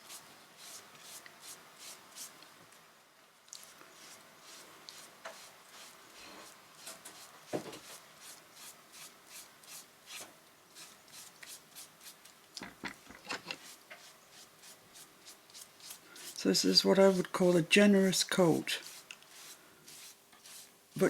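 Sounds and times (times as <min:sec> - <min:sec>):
brush strokes swishing on paper: 0:03.6 - 0:10.2, 0:13.6 - 0:17.4, 0:18.3 - 0:21.0.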